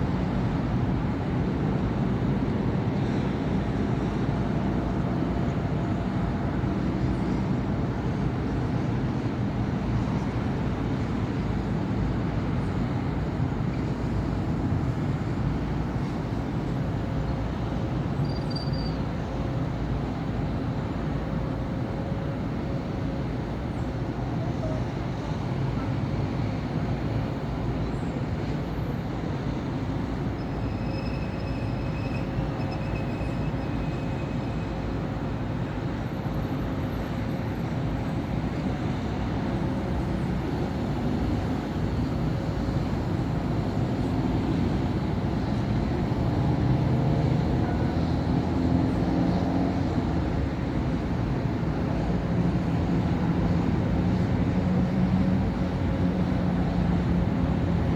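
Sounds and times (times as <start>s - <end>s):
traffic rumble of cars and buses: 0.0s - 57.9s
brief high squeal: 18.2s - 19.1s, 30.4s - 34.7s.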